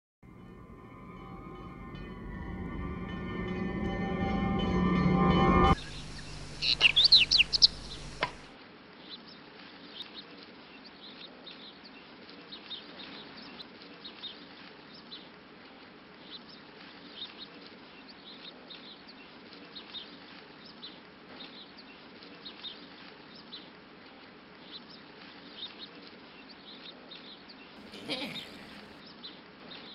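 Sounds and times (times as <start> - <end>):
birds chirping: 5.5 - 8.5, 27.8 - 29.0
low steady background hiss: 5.8 - 12.6.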